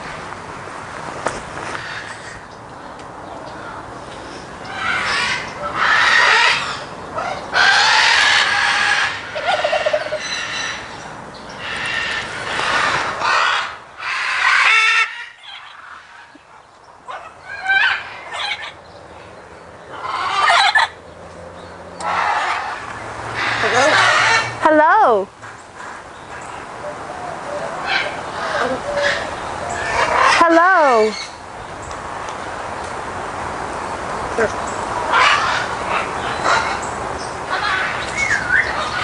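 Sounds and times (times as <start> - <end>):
parrots squawking: 4.7 - 11.0, 11.6 - 16.3, 17.1 - 18.8, 19.9 - 21.0, 22.0 - 31.4, 34.4 - 36.9, 37.5 - 39.0.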